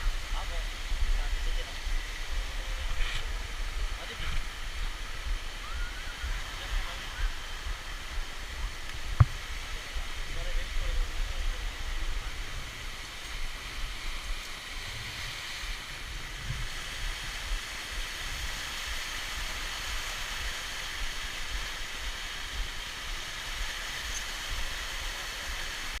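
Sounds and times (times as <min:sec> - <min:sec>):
low rumble: 0:00.0 - 0:19.0
waterfall rushing: 0:00.0 - 0:26.0.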